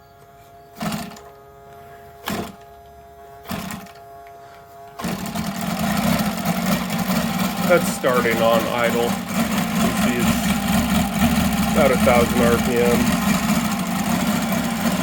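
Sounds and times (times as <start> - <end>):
radial engine cranking: 5.0 - 15.0
engine idling: 5.1 - 15.0.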